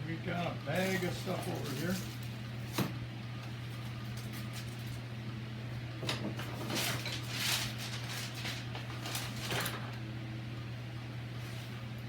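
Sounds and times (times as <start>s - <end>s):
rummaging through tools: 0.8s - 2.3s.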